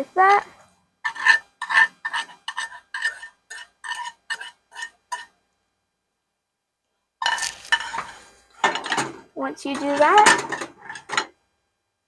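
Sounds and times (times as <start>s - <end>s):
utensil scraping a metal saucepan: 1.0s - 5.4s, 7.2s - 9.1s
pans clattering: 7.2s - 11.3s.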